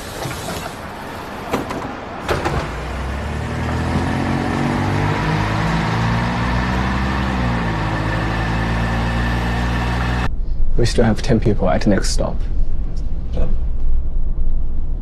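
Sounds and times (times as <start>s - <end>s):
bus engine accelerating: 0.0s - 10.3s.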